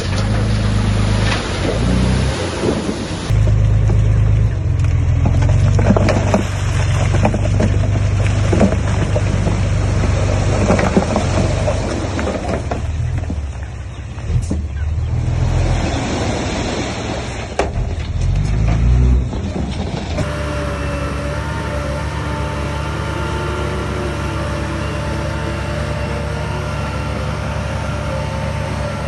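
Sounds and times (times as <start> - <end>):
bulldozer diesel engine: 0.0 - 29.0
stones and tracks clattering: 4.9 - 13.6, 17.5 - 20.3.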